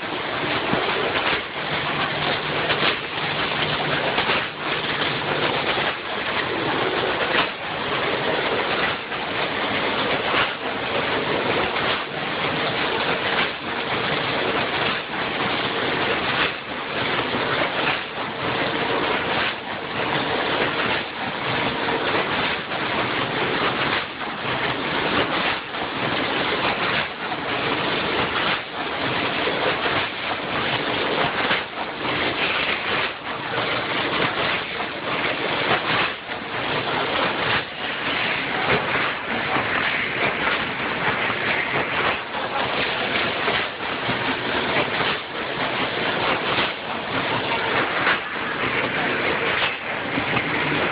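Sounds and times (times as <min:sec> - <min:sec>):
packaging machine running: 0:00.0 - 0:50.9.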